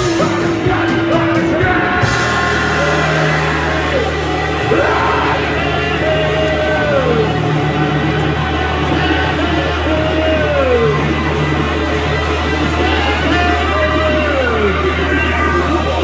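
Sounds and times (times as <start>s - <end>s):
electric guitar sliding down: 0.0s - 16.0s
live rock band: 0.0s - 16.0s.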